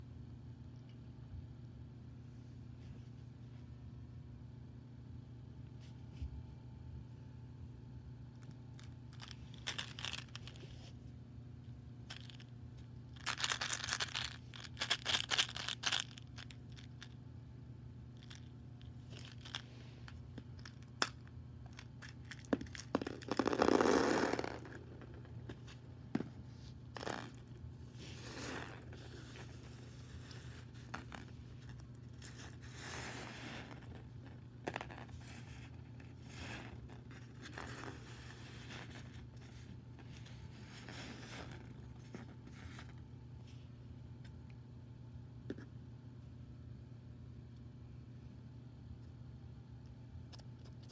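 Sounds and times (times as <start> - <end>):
faint low hum: 0.0 - 50.9
wrapper tearing and crinkling: 13.2 - 16.5.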